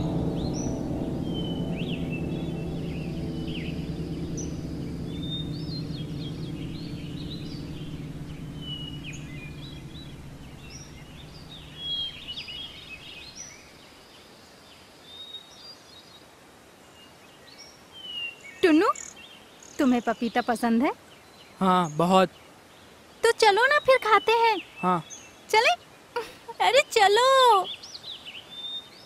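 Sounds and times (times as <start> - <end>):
birds chirping and whistling: 0.0 - 13.7
low steady hum: 0.0 - 14.1.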